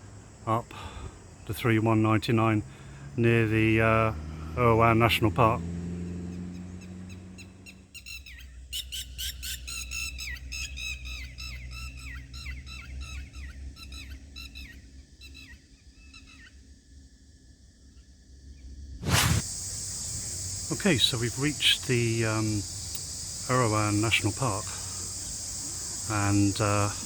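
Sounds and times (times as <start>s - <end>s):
bird squawky calls: 6.1s - 16.6s, 19.4s - 27.0s.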